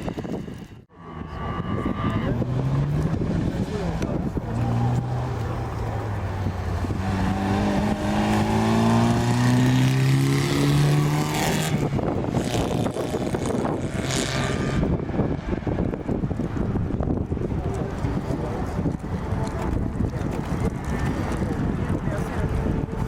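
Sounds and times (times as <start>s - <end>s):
rushing noise of car passing: 0.0s - 22.9s
rally car engine accelerating: 1.0s - 15.0s.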